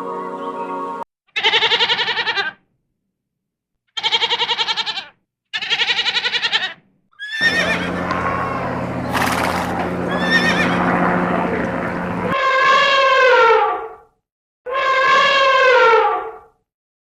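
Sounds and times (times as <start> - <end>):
animal bleating: 1.3 - 2.6, 3.9 - 8.7, 10.1 - 10.9, 14.7 - 16.1
animal gliding calls: 7.2 - 11.0.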